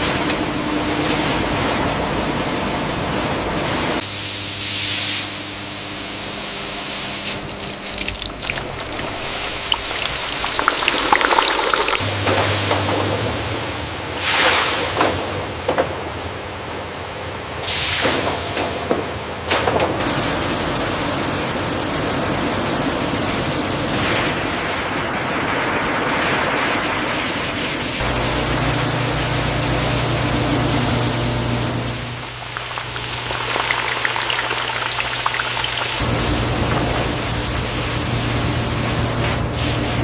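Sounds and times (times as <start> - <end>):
production line hiss: 4.0 - 7.7
low machine hum: 5.7 - 14.2, 24.6 - 40.0.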